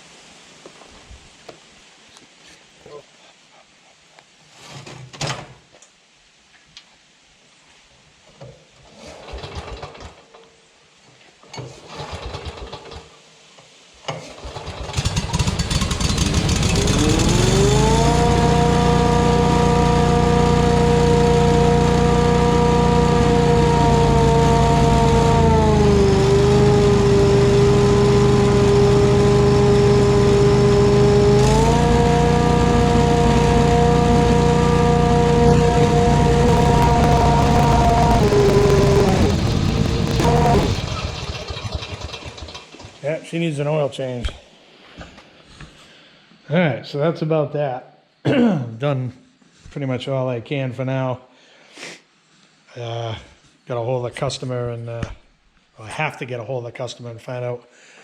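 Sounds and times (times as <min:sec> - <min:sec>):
blower engine running with whine: 0:15.0 - 0:42.2.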